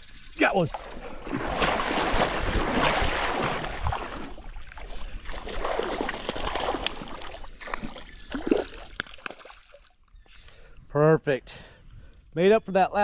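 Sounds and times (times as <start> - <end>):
water splashing and sloshing: 0.0 - 10.1.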